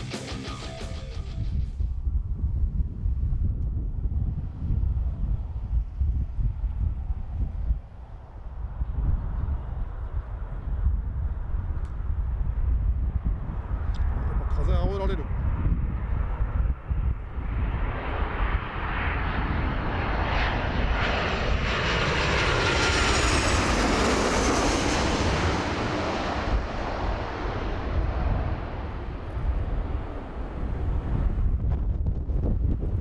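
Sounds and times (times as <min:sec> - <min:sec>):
airliner passing overhead: 0:00.1 - 0:33.0.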